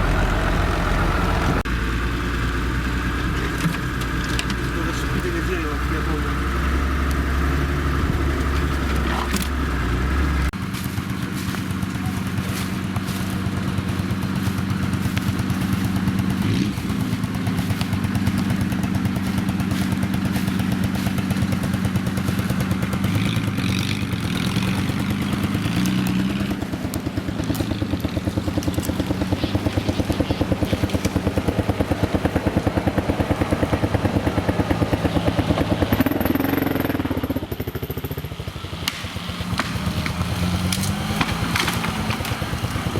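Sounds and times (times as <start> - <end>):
vehicle engine running: 0.0 - 42.9
clatter: 10.5 - 39.0, 39.6 - 42.9.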